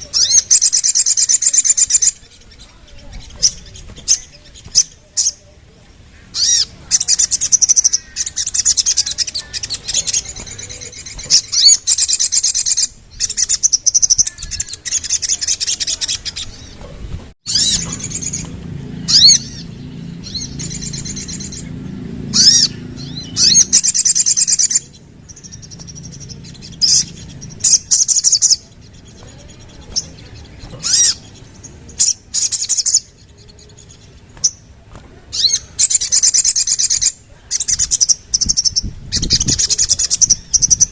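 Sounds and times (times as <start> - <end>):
bird singing high trills: 0.0 - 5.6, 6.2 - 16.8, 17.4 - 40.9.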